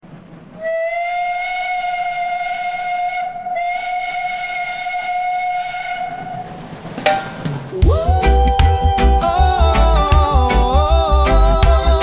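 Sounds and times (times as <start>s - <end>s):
steam train whistle: 0.6s - 6.8s.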